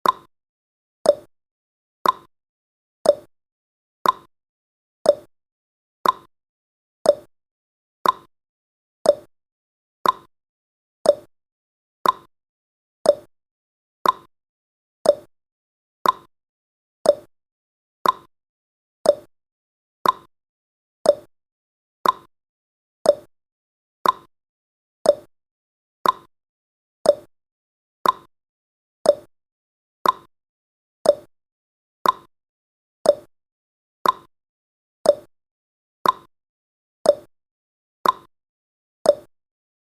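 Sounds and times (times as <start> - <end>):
timer ticking clicks: 0.0 - 0.3, 1.0 - 1.3, 2.0 - 2.3, 3.0 - 3.3, 4.0 - 4.3, 5.0 - 5.3, 6.0 - 6.3, 7.0 - 7.3, 8.0 - 8.3, 9.0 - 9.3, 10.0 - 10.3, 11.0 - 11.3, 12.0 - 12.3, 13.0 - 13.3, 14.0 - 14.3, 15.0 - 15.3, 16.0 - 16.3, 17.0 - 17.3, 18.0 - 18.3, 19.0 - 19.3, 20.0 - 20.3, 21.0 - 21.3, 22.0 - 22.3, 23.0 - 23.3, 24.0 - 24.3, 25.0 - 25.3, 26.0 - 26.3, 27.0 - 27.3, 28.0 - 28.3, 29.0 - 29.3, 30.0 - 30.3, 31.0 - 31.3, 32.0 - 32.3, 33.0 - 33.3, 34.0 - 34.3, 35.0 - 35.3, 36.0 - 36.3, 37.0 - 37.3, 38.0 - 38.3, 39.0 - 39.3.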